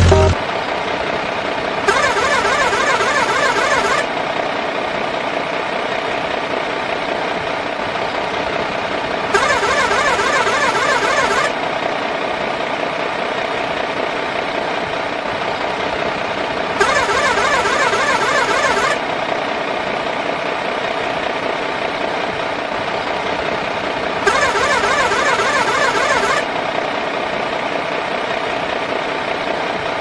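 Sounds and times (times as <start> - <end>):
toy motor and gears whirring: 1.9 - 4.1, 9.4 - 11.5, 24.3 - 26.5.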